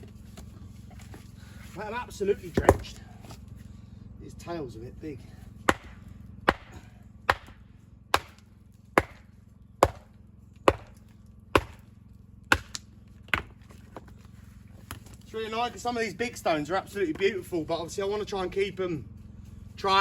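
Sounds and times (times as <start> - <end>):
hammer striking stone: 5.7 - 8.4, 9.0 - 9.2, 10.7 - 11.0, 11.6 - 11.8.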